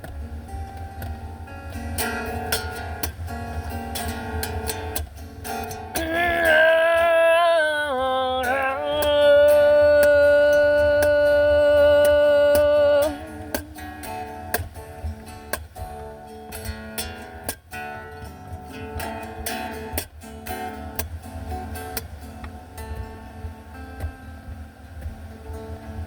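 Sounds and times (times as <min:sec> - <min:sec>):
acoustic guitar strumming: 0:00.0 - 0:26.0
person singing wordless note: 0:06.0 - 0:13.8.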